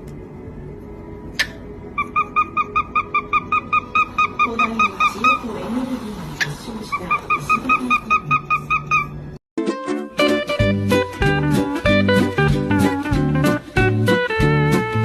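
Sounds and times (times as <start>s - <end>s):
bird honking calls: 1.4s - 9.4s.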